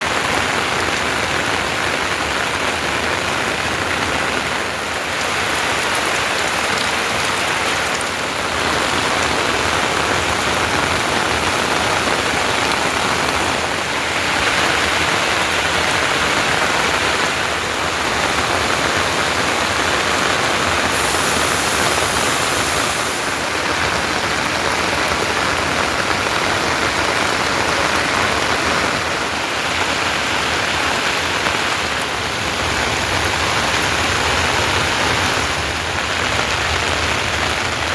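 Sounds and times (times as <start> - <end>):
rain falling steadily: 0.0 - 37.9.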